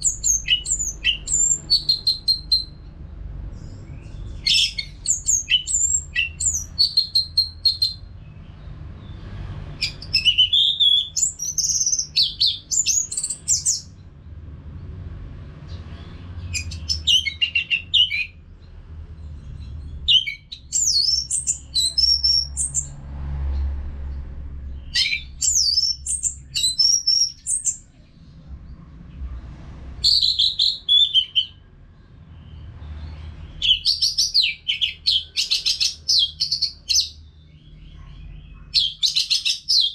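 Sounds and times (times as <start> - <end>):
thrush singing whistled phrases: 0.0 - 2.8, 4.4 - 8.0, 9.8 - 13.9, 24.9 - 27.8, 30.0 - 31.6
low steady rumble: 0.0 - 10.5, 11.2 - 30.9.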